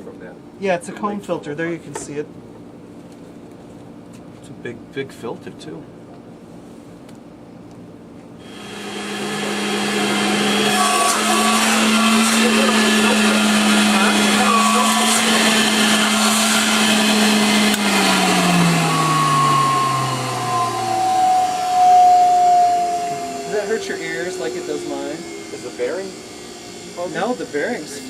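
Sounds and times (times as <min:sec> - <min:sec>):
vacuum cleaner motor whining: 0:08.4 - 0:28.0.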